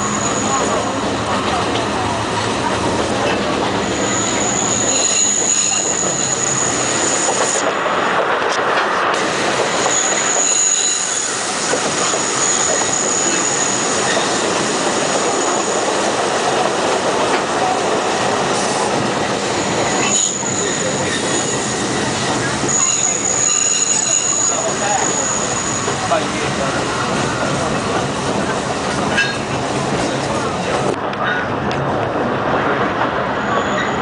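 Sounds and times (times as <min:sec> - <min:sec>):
high wheel squeal: 0:00.0 - 0:01.2, 0:03.7 - 0:07.8, 0:09.7 - 0:16.0, 0:19.4 - 0:27.5, 0:33.4 - 0:34.0
train wheels rattling on rail: 0:00.0 - 0:34.0.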